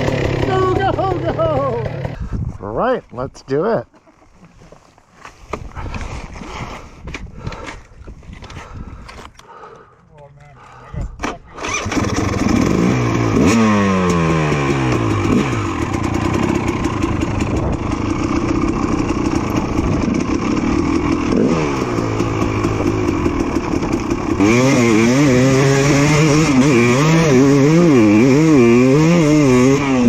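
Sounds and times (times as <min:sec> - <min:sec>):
dirt bike engine revving: 0:00.0 - 0:02.2, 0:11.6 - 0:30.0.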